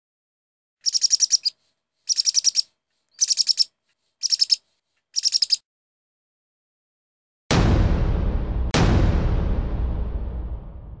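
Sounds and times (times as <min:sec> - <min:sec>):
bird chirping in rapid trills: 0:00.8 - 0:04.6, 0:05.2 - 0:05.6.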